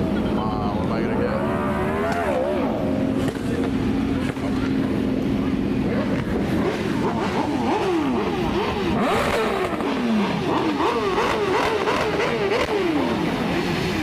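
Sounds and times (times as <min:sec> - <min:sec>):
car engine revving in blips: 0:05.8 - 0:14.0.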